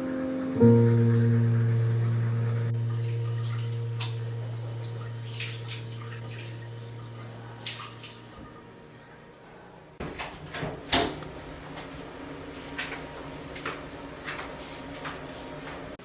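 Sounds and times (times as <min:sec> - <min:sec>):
background music held low note: 0:00.0 - 0:07.7.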